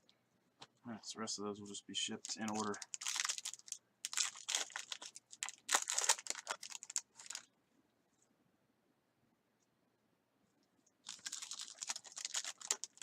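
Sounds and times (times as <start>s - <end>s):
plastic packaging crinkling: 2.2s - 7.5s, 11.0s - 13.0s.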